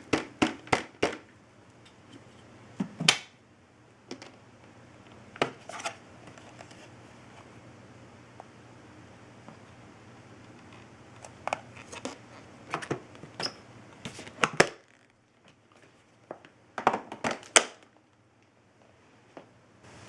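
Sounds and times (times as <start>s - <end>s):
crinkling rustles: 10.5s - 12.5s, 14.0s - 16.5s.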